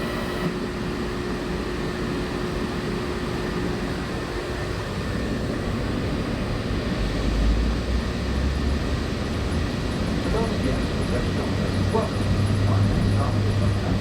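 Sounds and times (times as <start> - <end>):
faint hum: 0.0 - 0.6
monorail cabin rumble: 10.2 - 14.0.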